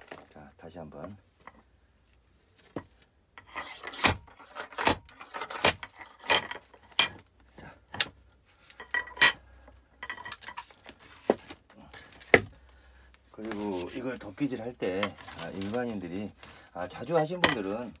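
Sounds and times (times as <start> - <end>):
wood scraping: 2.5 - 7.0, 13.3 - 16.7
axe striking firewood: 12.3 - 12.5.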